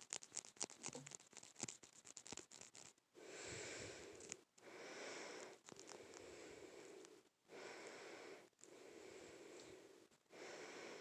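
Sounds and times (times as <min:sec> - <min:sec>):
slow breaths close to microphone: 0:03.2 - 0:11.0.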